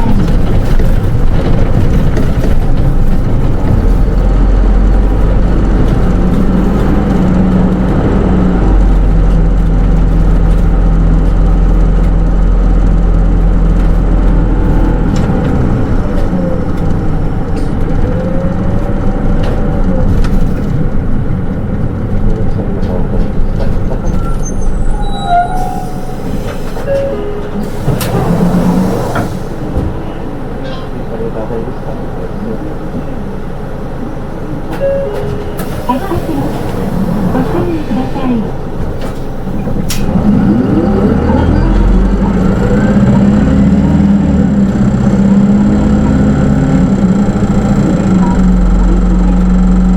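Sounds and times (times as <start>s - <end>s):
bus engine droning: 0.0s - 49.9s
short high squeals: 24.2s - 26.3s.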